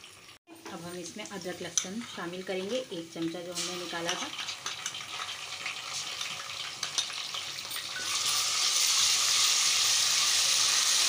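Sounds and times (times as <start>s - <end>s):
onions frying in hot oil: 0.0s - 11.0s
wooden spoon stirring: 0.9s - 7.8s.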